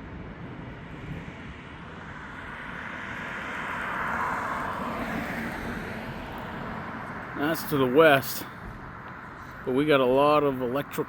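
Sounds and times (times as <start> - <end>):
vehicle passing by: 0.9 - 10.1.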